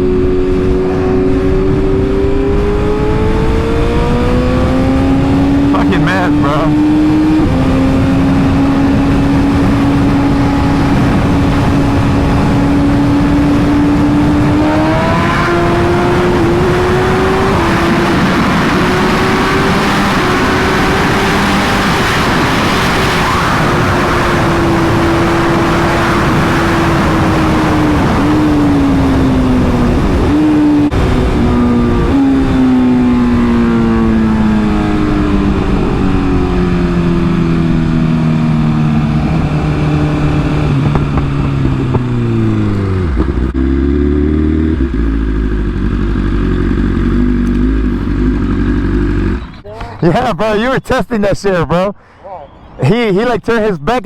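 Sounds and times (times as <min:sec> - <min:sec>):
wind noise: 0:00.0 - 0:43.8
motorcycle engine running: 0:00.0 - 0:50.3.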